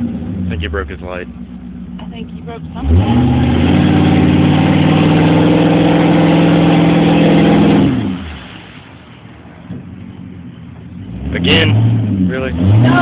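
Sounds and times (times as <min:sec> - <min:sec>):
pickup engine revving hard: 0:02.5 - 0:08.8, 0:11.0 - 0:13.0.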